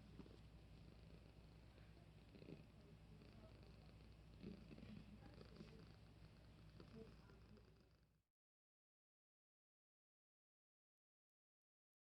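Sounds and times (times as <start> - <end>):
faint cat purring: 0.0 - 8.2.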